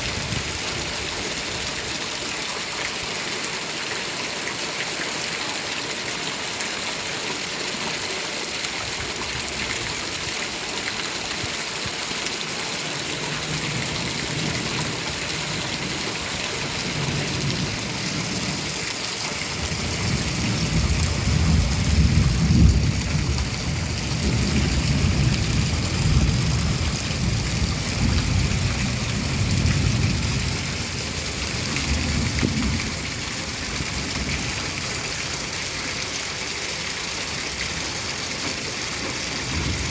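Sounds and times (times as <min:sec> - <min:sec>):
heavy rain: 0:00.0 - 0:39.9
rolling thunder: 0:19.5 - 0:30.8.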